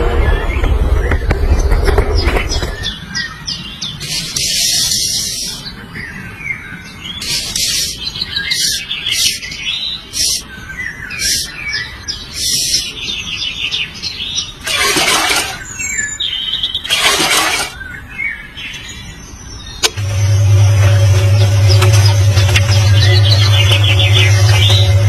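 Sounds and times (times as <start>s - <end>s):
loud burst of noise: 0.0s - 2.6s, 14.6s - 15.6s, 16.9s - 17.8s, 19.8s - 25.0s
birds chirping and calling: 0.0s - 25.0s.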